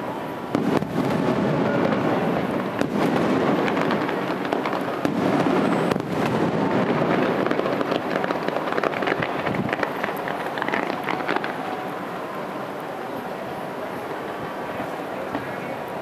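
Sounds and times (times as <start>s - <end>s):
fireworks rumble and crackle: 0.0s - 16.0s
firework shells booming: 0.5s - 11.6s.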